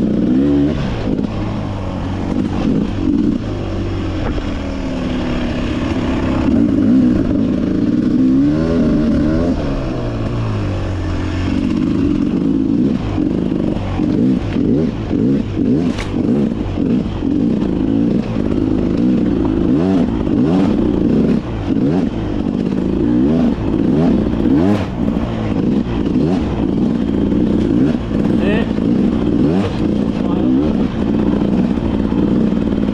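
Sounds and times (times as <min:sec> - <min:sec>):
dirt bike engine revving: 0:00.0 - 0:32.9.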